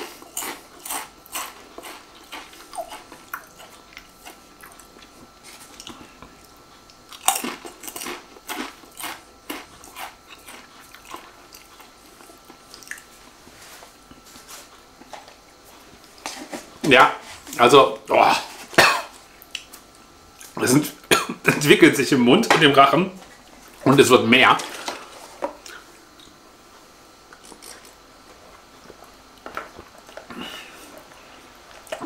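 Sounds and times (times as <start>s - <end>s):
crunching and chewing crisp: 0.0s - 16.7s, 27.3s - 32.0s.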